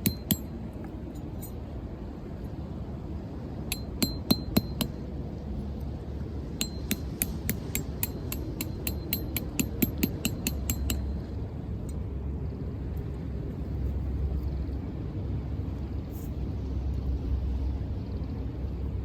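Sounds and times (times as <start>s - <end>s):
ringing metallic taps: 0.0s - 0.6s, 3.7s - 5.0s, 6.6s - 11.2s.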